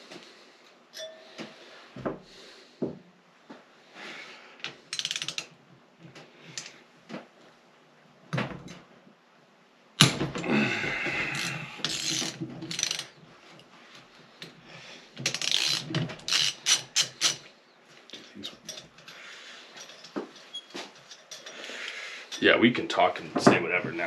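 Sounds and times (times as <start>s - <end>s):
ratchet wrench clicking: 5.0s - 5.4s, 11.8s - 13.1s, 15.3s - 17.4s.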